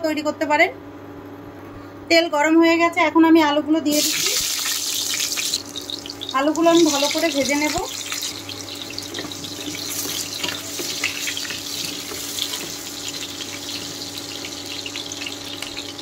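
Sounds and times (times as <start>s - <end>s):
potatoes frying in hot oil: 3.9s - 16.0s.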